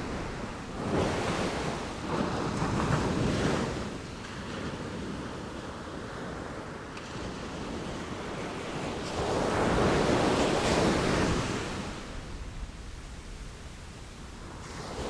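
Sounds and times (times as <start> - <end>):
ocean waves breaking: 0.0 - 5.3.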